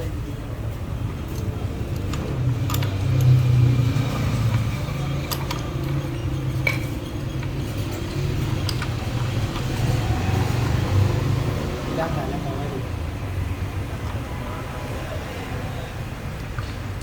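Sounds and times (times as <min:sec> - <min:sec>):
metallic clinks: 0:01.2 - 0:09.1.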